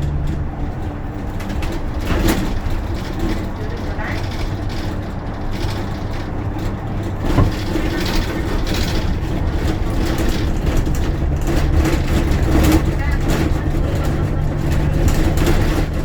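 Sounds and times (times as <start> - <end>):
bus engine droning: 0.0 - 16.0
single knock: 7.4 - 7.7.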